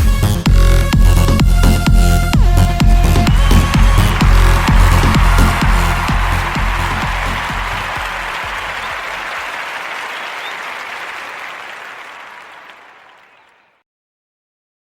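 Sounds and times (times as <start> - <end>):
applause: 2.2 - 13.7.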